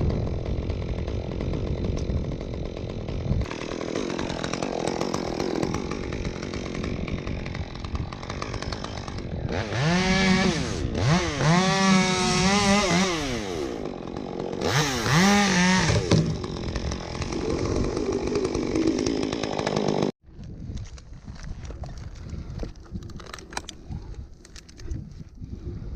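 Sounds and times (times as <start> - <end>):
chainsaw revving: 0.1 - 20.2.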